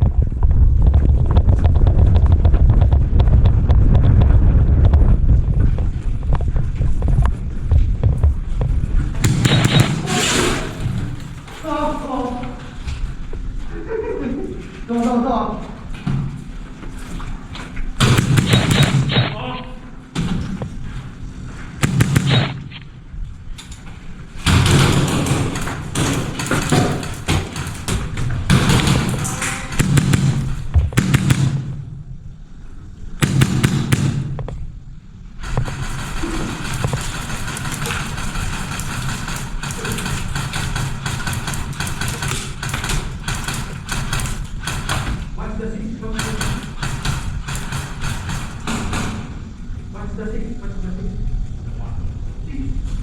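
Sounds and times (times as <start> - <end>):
wind buffeting the microphone: 0.0 - 9.5
thumps: 0.0 - 11.7, 18.0 - 21.1, 21.7 - 23.2, 24.4 - 32.3
running footfalls: 0.0 - 13.7, 20.2 - 31.8
sharp clicks: 9.2 - 11.3, 18.0 - 19.6, 21.8 - 23.8
airsoft guns firing: 9.2 - 11.6, 18.0 - 19.6, 21.8 - 23.0, 24.4 - 32.2, 33.2 - 34.6, 35.4 - 45.4, 46.1 - 49.4.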